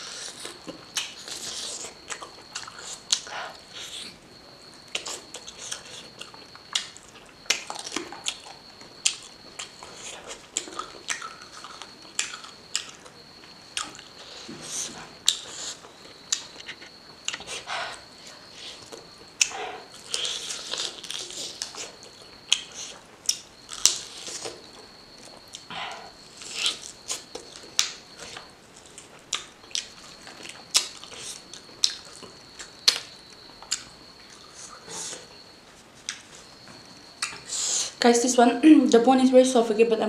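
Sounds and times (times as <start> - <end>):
person chewing with wet smacks: 4.8 - 17.7.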